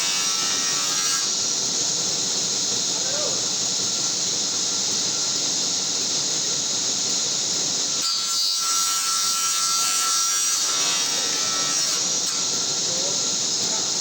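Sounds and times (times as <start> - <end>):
saw blade cutting wood: 0.0 - 1.3, 8.0 - 12.7
table saw running: 8.0 - 13.1.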